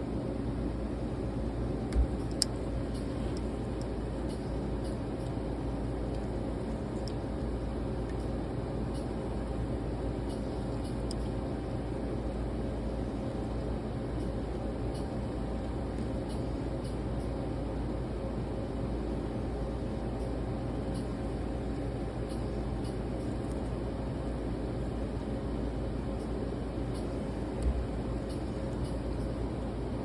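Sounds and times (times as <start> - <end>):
equipment humming: 0.0 - 30.0
plastic tubing clicks: 1.9 - 5.0.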